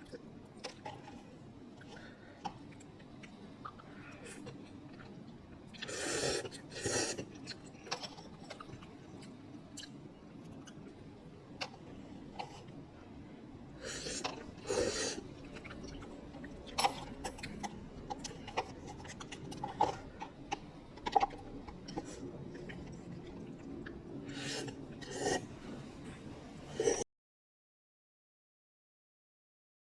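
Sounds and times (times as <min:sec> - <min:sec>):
chewing noodles: 0:00.0 - 0:12.9, 0:13.7 - 0:27.0
slurping: 0:05.7 - 0:08.9, 0:13.8 - 0:26.0, 0:26.7 - 0:27.0.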